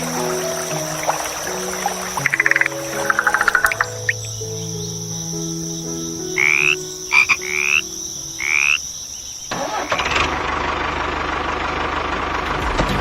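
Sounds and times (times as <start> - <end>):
frog croaking: 0.0 - 9.5.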